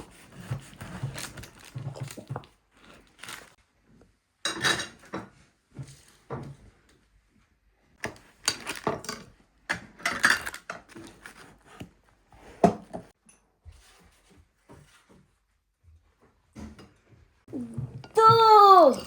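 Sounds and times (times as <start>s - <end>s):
dishes and pots clattering: 4.4s - 5.4s, 8.8s - 10.9s.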